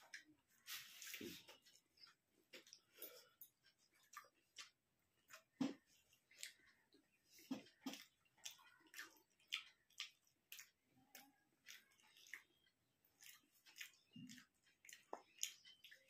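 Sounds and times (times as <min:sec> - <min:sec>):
wet chewing mouth clicks: 0:03.7 - 0:16.0.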